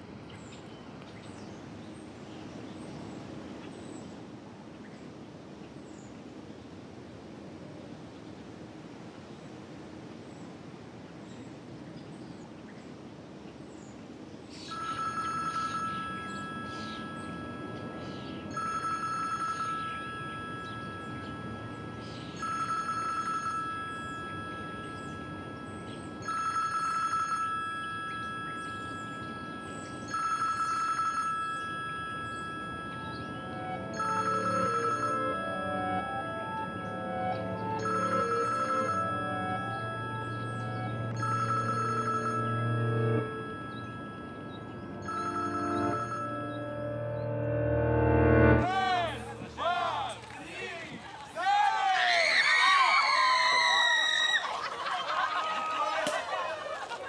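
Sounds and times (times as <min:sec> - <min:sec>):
mobile phone ringing: 0:14.6 - 0:48.6
music: 0:31.7 - 0:49.4.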